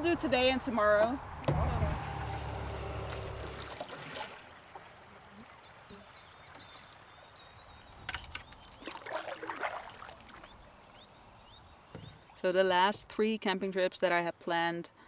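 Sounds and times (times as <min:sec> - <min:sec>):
paddle knocks and splashes: 0:03.1 - 0:05.6, 0:07.9 - 0:10.6
faint birds chirping: 0:03.4 - 0:15.0.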